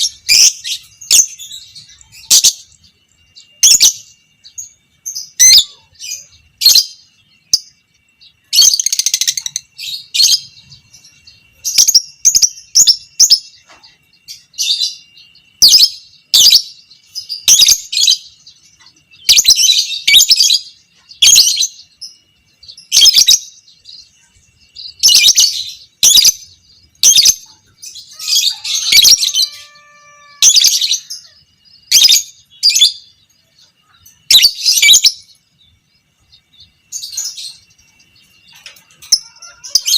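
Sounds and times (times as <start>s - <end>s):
bird chattering trills: 22.7s - 35.5s.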